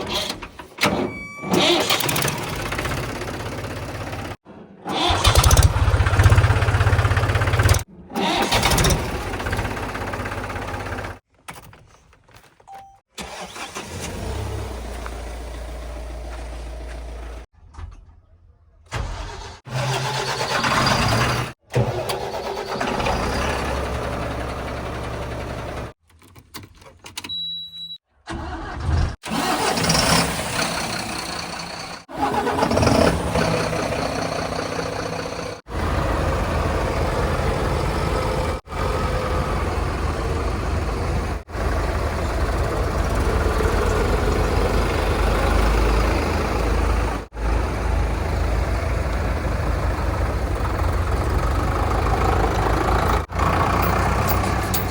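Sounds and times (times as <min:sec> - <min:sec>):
diesel machinery engines running: 0:00.0 - 0:11.2, 0:19.1 - 0:25.9, 0:28.3 - 0:54.9
short high beep: 0:12.7 - 0:13.0.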